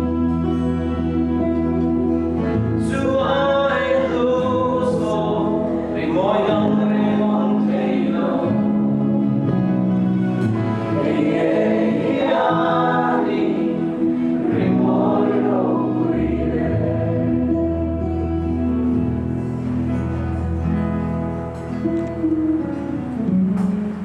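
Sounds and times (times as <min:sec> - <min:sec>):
group of voices singing: 0:02.4 - 0:09.6, 0:10.4 - 0:18.0.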